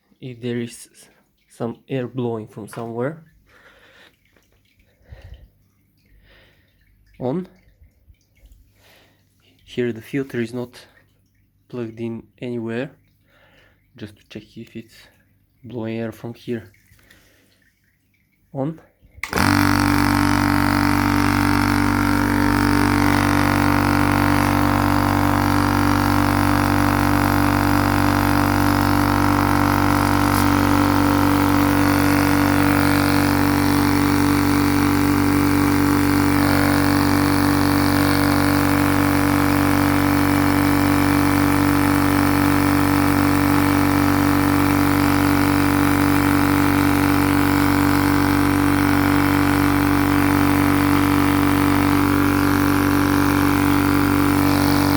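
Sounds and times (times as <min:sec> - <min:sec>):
man talking: 0:00.2 - 0:03.2, 0:09.7 - 0:10.9, 0:11.7 - 0:12.9, 0:15.7 - 0:16.7, 0:18.6 - 0:18.8
air compressor droning: 0:19.2 - 0:54.9.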